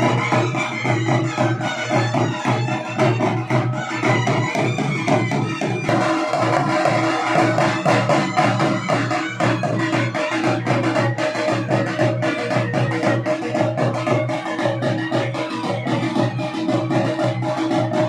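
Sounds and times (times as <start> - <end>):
fast steady drumming: 0.0 - 18.0.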